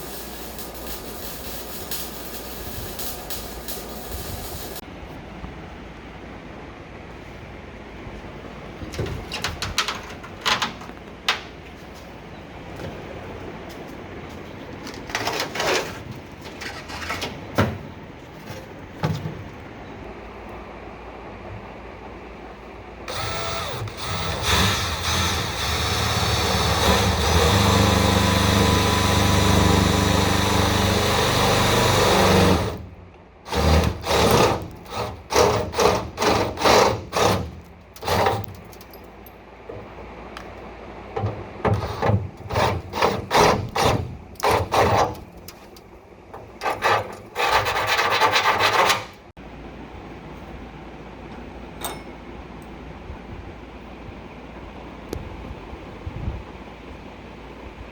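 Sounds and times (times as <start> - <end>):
power tool running: 23.1 - 32.9, 33.5 - 38.5.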